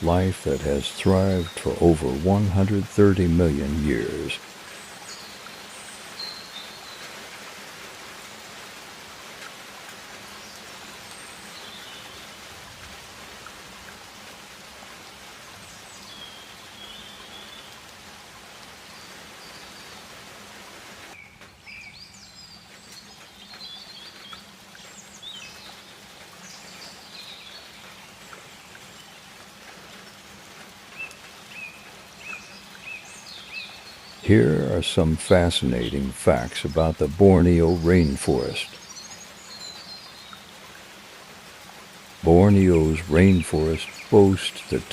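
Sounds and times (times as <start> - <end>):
steady hiss of rain or insects: 0.0 - 44.9
bird calls: 30.9 - 40.7, 42.2 - 44.9.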